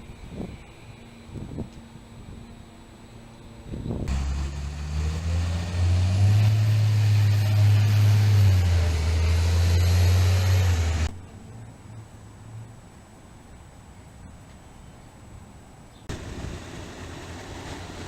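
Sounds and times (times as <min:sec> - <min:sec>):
heavy vehicle engine rumbling: 0:04.0 - 0:12.7, 0:16.1 - 0:18.0.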